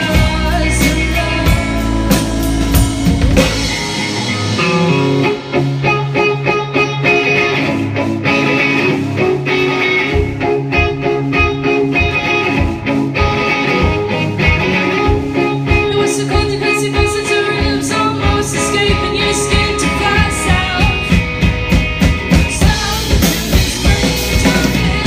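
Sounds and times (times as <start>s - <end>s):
live rock band instrumental: 0.0s - 25.0s
repeating guitar figure: 3.4s - 15.2s.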